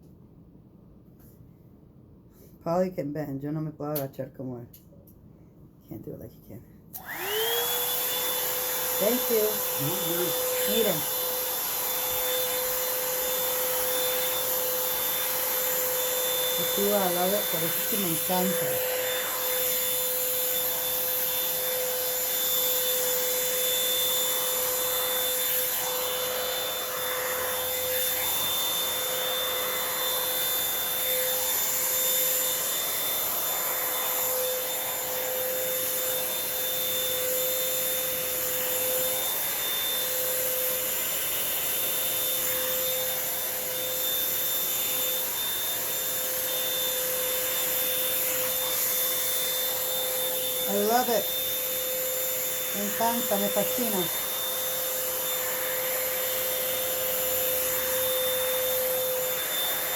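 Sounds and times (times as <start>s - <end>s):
hair dryer running: 6.9s - 59.9s.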